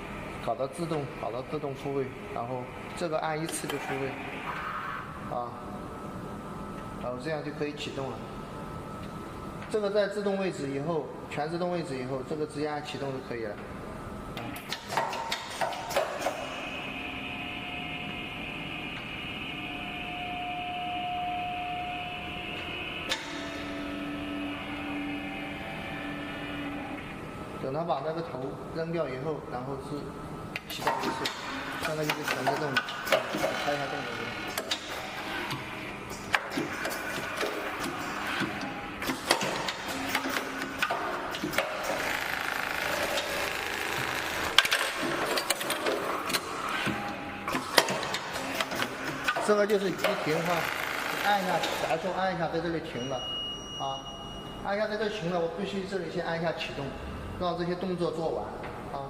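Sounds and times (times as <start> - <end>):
machine whirring: 0.0 - 12.0, 12.7 - 52.8
sewing machine whining: 30.8 - 52.2.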